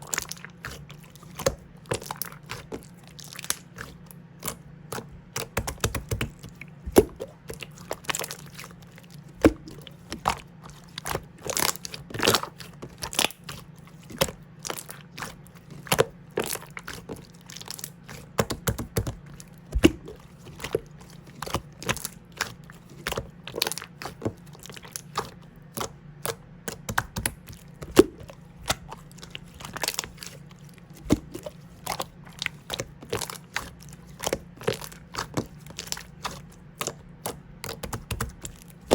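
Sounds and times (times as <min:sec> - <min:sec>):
faint steady hum: 0:00.0 - 0:38.9
slime squished by hand: 0:00.0 - 0:38.9.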